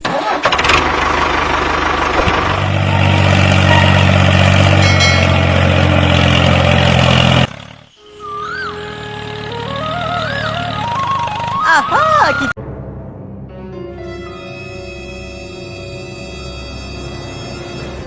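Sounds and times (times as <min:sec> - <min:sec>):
vehicle engine running: 0:00.5 - 0:11.6.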